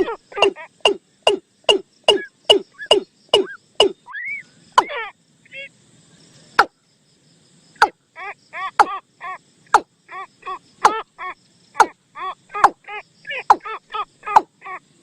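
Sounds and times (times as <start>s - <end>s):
bird lure call: 0.0s - 5.7s, 8.6s - 14.8s.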